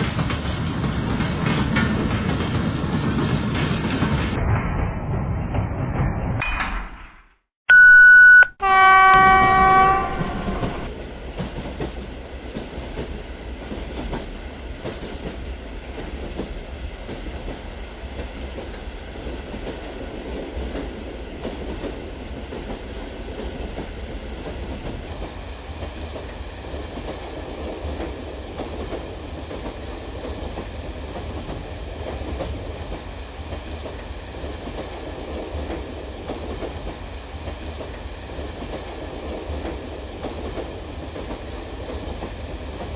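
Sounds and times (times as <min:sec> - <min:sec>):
short beep: 0:07.7 - 0:10.9
toy train electronic horn: 0:08.6 - 0:10.9.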